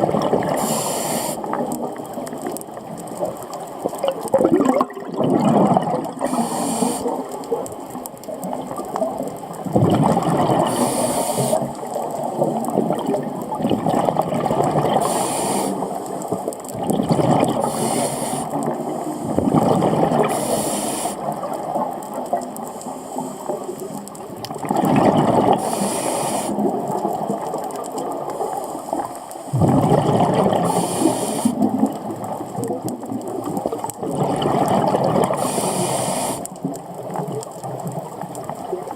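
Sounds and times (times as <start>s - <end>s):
bubbling exhaled air: 0.0s - 7.7s, 8.4s - 38.9s
hissing regulator inhales: 0.6s - 1.5s, 6.2s - 7.2s, 10.7s - 11.7s, 15.0s - 15.9s, 17.6s - 18.5s, 20.3s - 21.2s, 25.6s - 26.6s, 30.7s - 31.6s, 35.4s - 36.5s.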